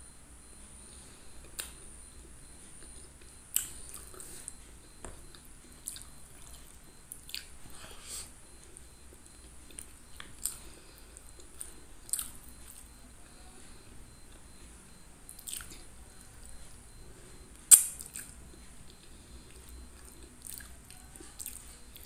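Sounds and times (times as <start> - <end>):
person chewing food: 0.9 - 13.4, 14.1 - 22.0
mouth smacking clicks: 1.4 - 1.8, 2.8 - 4.3, 17.7 - 18.4.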